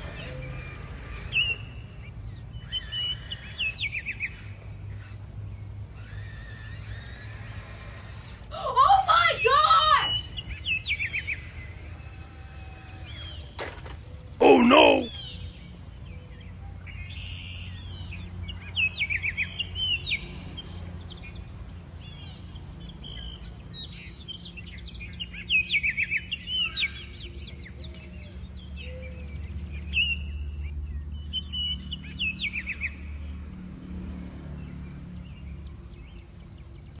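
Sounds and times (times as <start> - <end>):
birds chirping: 14.3 - 33.3.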